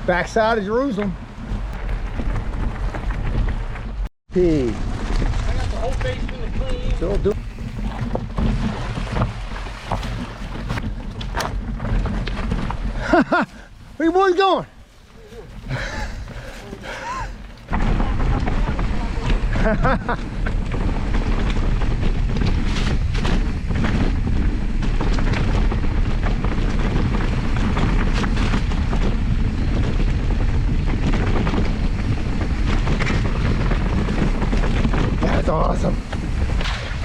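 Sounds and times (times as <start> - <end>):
bike knocks and rattles: 0.0 - 13.9, 15.4 - 37.0
wind buffeting microphone: 0.0 - 37.0.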